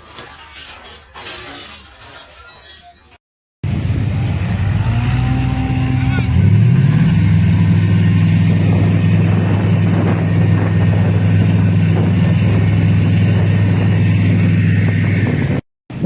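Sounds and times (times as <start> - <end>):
road noise: 3.6 - 16.0
vehicle engine drone: 3.6 - 16.0.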